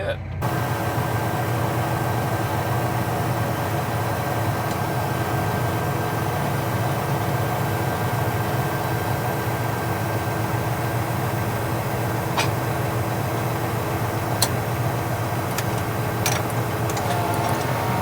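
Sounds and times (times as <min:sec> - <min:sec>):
tractor engine droning: 0:00.0 - 0:18.0.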